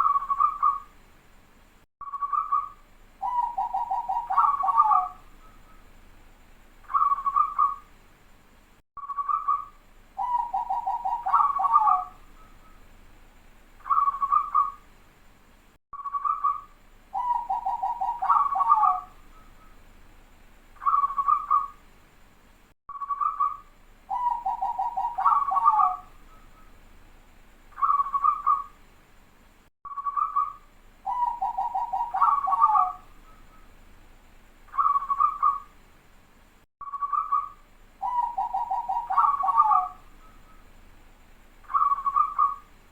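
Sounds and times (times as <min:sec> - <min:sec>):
dove cooing and trilling: 0:00.0 - 0:00.9, 0:02.2 - 0:05.6, 0:06.9 - 0:07.8, 0:10.2 - 0:12.5, 0:13.8 - 0:14.8, 0:17.2 - 0:19.7, 0:20.8 - 0:21.8, 0:23.1 - 0:26.7, 0:27.8 - 0:28.7, 0:30.0 - 0:33.6, 0:34.7 - 0:35.7, 0:37.0 - 0:40.6, 0:41.7 - 0:42.7.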